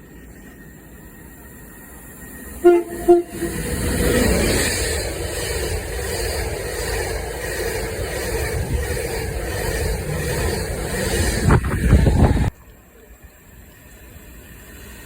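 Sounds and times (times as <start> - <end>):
train wheels rumbling on track: 0.0 - 12.6
train horn blasts: 2.6 - 3.8.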